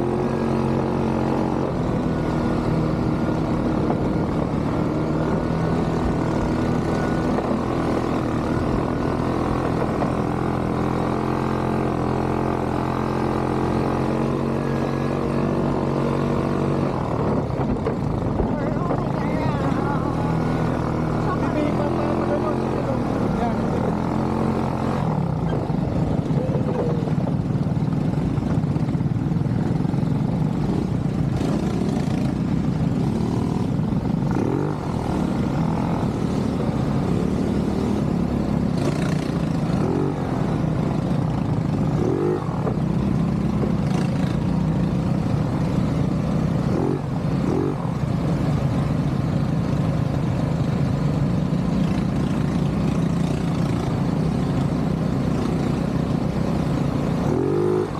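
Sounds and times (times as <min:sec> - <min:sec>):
atv engine running: 0:00.0 - 0:57.9.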